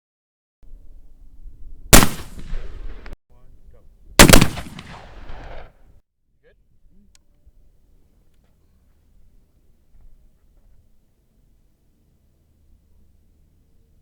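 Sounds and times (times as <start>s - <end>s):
rifle shots with rolling echo: 1.9s - 3.2s, 4.2s - 5.8s.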